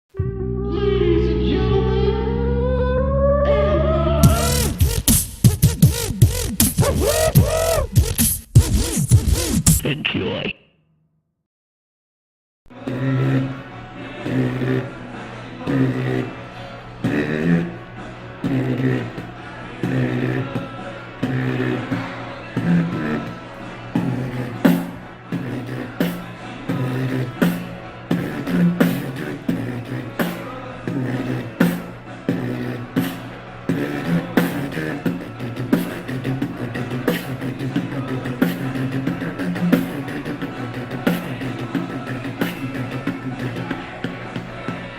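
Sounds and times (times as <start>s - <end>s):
hummed bass line: 0.1s - 10.6s
beatboxing vocal bass: 4.0s - 10.6s, 12.9s - 13.6s, 14.2s - 14.9s, 15.6s - 16.4s, 17.0s - 17.8s, 18.4s - 22.0s, 22.6s - 23.4s, 24.0s - 44.9s
beatbox hi-hat clicks: 4.2s - 10.5s.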